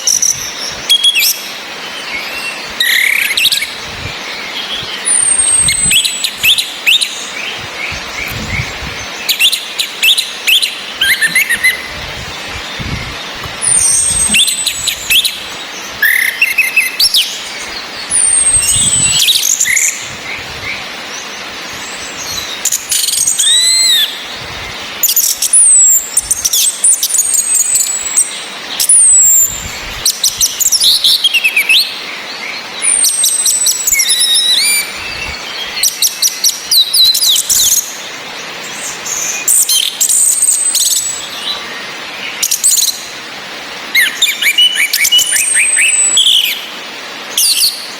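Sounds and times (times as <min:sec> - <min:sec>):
rain hissing: 0:00.0 - 0:47.9
thrush whistling calls: 0:00.0 - 0:47.9
rapid ticking bird notes: 0:05.4 - 0:17.1.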